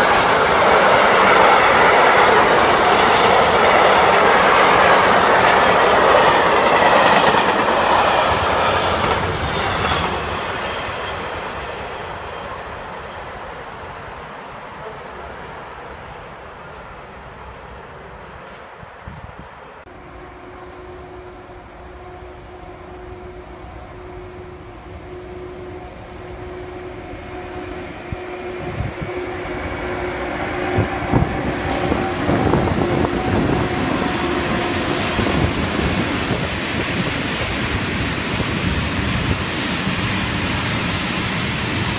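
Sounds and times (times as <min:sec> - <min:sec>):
train wheels rolling on rails: 0:00.0 - 0:19.0, 0:28.7 - 0:41.9.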